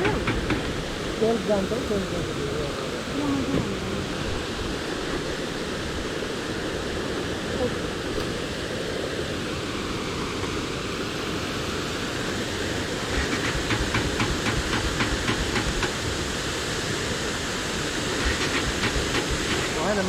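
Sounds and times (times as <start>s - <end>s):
rapid ticks: 13.1s - 16.0s.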